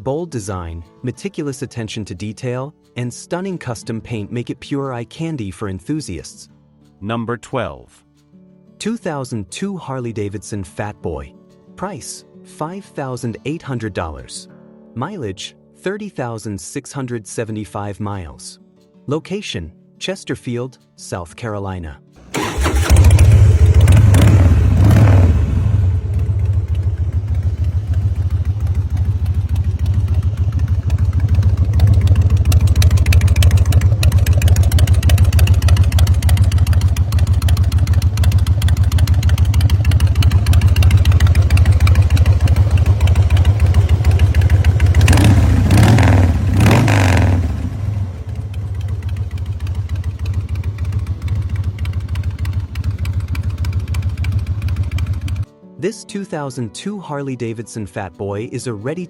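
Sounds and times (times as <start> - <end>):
motorcycle engine idling: 22.2 - 55.4
motorcycle engine revving: 22.2 - 55.4.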